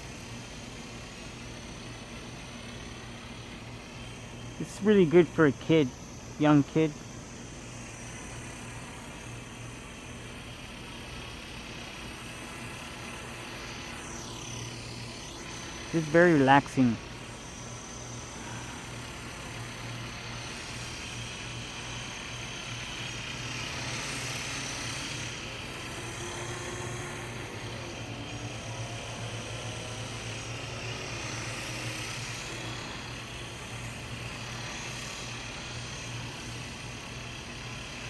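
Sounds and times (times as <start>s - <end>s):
toy helicopter motor buzzing: 0.0s - 38.0s.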